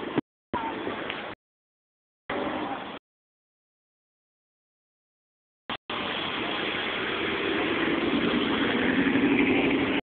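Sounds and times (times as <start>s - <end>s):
car engine running: 5.9s - 10.0s.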